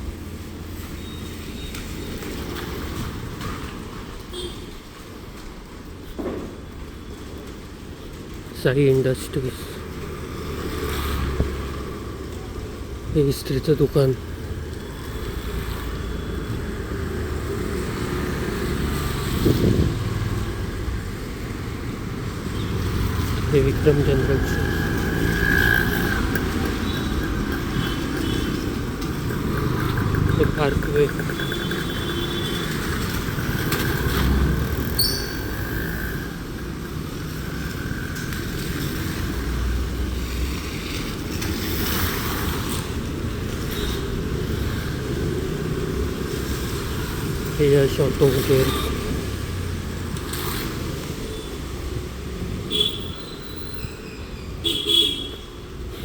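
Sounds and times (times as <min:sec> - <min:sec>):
traffic rumble: 0:00.0 - 0:56.0
vehicle passing: 0:16.6 - 0:42.9.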